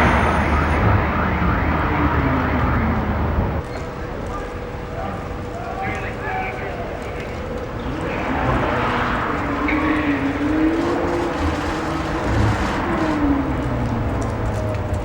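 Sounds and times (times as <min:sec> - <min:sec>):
car engine revving: 0:00.0 - 0:03.6, 0:07.8 - 0:14.2.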